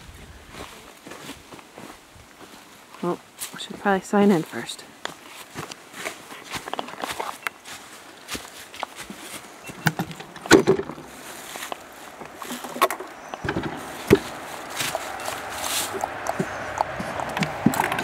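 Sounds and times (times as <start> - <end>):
rustling: 4.3 - 18.0
wooden knocks and clunks: 9.7 - 15.0, 16.1 - 18.0.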